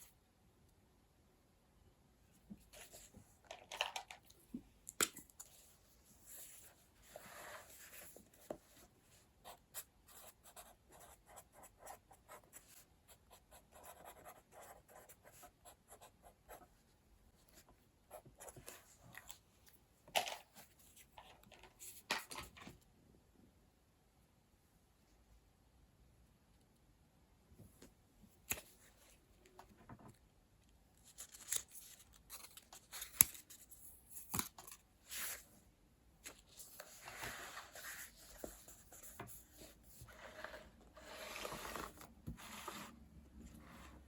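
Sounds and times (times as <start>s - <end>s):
pen scratching on paper: 9.4s - 16.6s.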